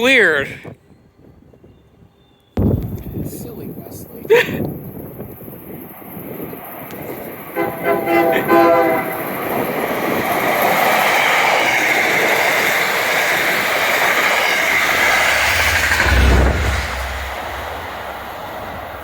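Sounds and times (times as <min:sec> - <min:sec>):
deep train rumble: 0:01.2 - 0:19.0
train wheels on rails: 0:04.6 - 0:19.0.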